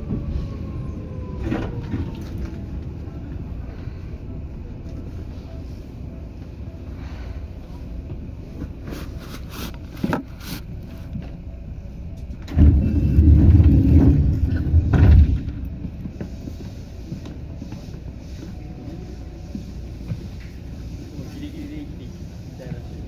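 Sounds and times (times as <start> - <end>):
train rumble from inside: 0.0 - 23.0
heavy loud rumble: 12.5 - 15.9.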